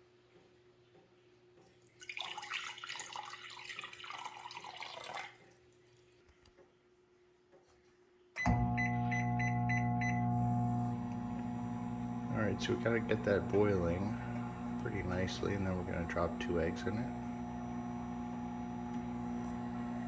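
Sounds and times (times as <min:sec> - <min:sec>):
tap water running into cup: 0:01.8 - 0:05.6
microwave beeps: 0:08.4 - 0:20.0
microwave oven humming: 0:08.4 - 0:20.0.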